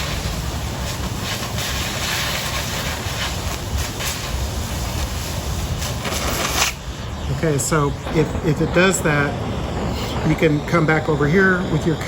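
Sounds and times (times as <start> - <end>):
cutting torch hissing: 0.0 - 12.0.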